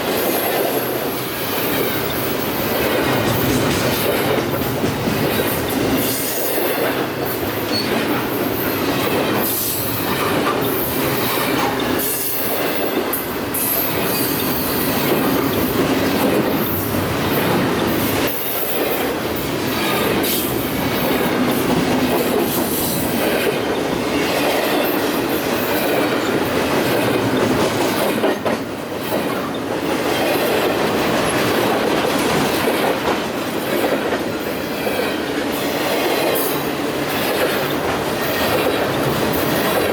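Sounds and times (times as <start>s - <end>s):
train wheels rumbling on rails: 0.0s - 39.9s
wheels clicking over rail joints: 1.4s - 39.9s.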